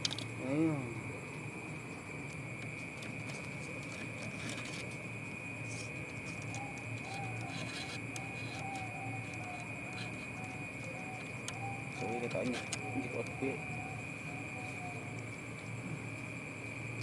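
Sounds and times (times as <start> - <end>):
steady high-pitched whine: 0.0 - 17.0
dove cooing: 5.6 - 16.2.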